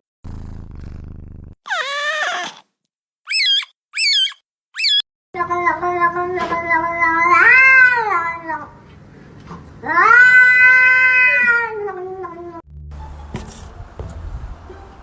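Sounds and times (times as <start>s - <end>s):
cat yowling: 1.7s - 2.6s, 3.3s - 5.0s, 9.9s - 12.2s.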